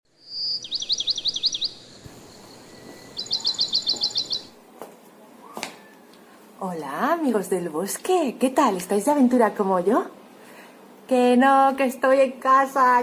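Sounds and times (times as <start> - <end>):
songbird trilling: 0.2 - 4.6.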